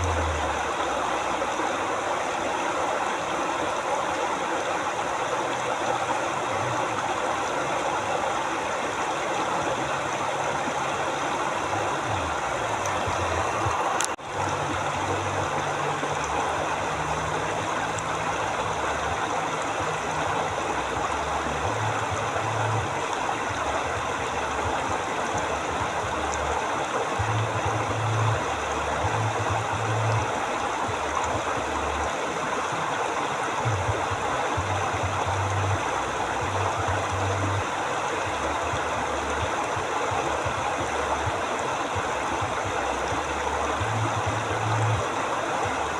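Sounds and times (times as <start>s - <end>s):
low hum: 0.0s - 1.5s
river flowing: 0.0s - 45.9s.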